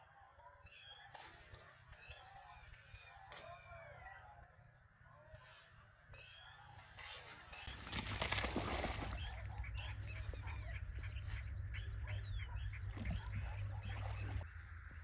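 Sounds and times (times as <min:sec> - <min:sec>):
animals chirping: 0:05.3 - 0:14.4.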